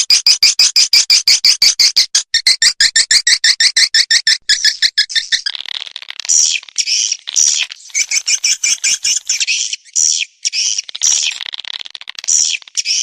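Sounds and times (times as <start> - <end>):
swiftlets twittering: 6.4 - 9.9.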